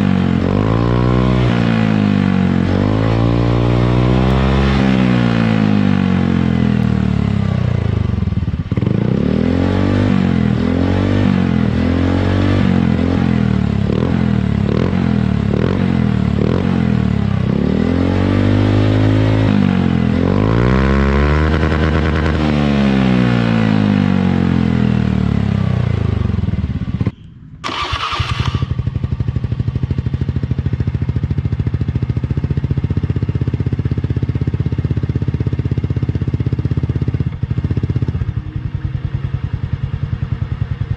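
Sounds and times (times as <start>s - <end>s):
scooter engine revving: 25.9s - 32.1s
scooter engine idling: 26.0s - 40.9s.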